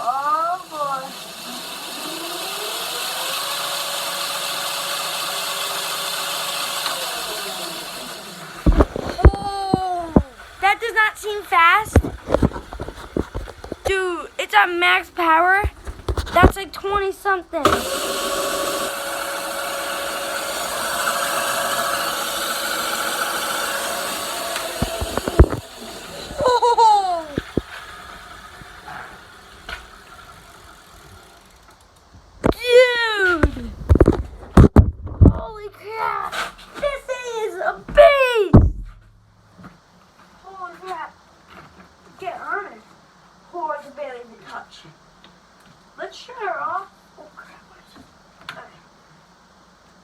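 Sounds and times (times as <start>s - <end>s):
dirt bike motor whining: 0.0s - 35.5s
steady hiss: 6.6s - 18.9s, 20.5s - 34.6s.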